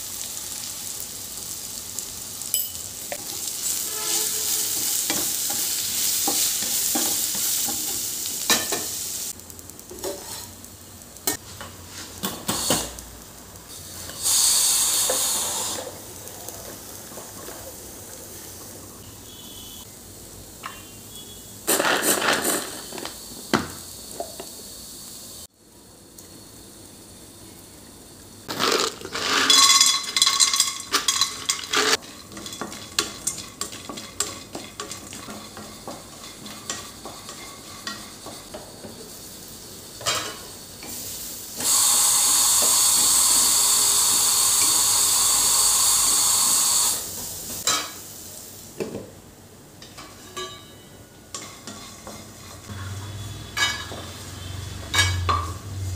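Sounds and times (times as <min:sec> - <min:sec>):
loud sizzling hiss: 0:00.0 - 0:11.4, 0:12.2 - 0:32.0, 0:32.8 - 0:49.7, 0:52.2 - 0:55.9
metal utensils clinking on pots: 0:02.5 - 0:03.4, 0:28.5 - 0:38.6, 0:49.8 - 0:52.7, 0:53.6 - 0:54.1, 0:54.8 - 0:55.6.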